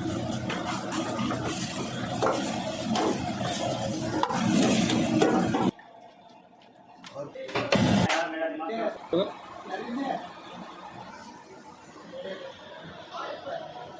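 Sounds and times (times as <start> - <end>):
food sizzling in pot: 0.0 - 5.8.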